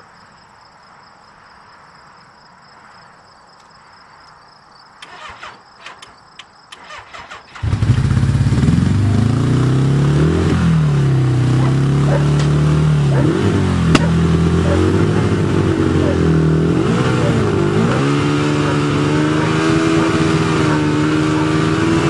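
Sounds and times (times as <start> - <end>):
crickets chirping: 0.0 - 7.8
motorcycle engine revving: 6.8 - 22.0
motorcycle engine running: 7.6 - 22.0.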